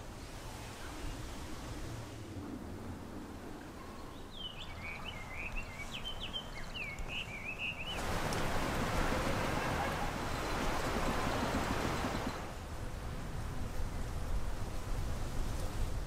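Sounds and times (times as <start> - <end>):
loud steady rushing noise: 0.0 - 6.0
small bird singing: 4.0 - 8.0.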